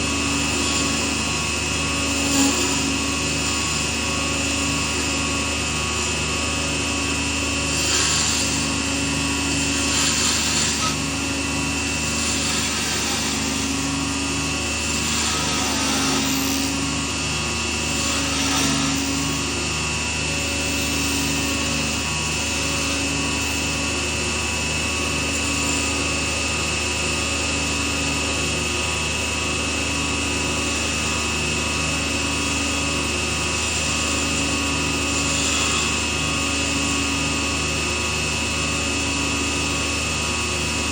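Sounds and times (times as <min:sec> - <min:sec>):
lathe running: 0:00.0 - 0:40.9
scraping on spinning workpiece: 0:07.6 - 0:14.0.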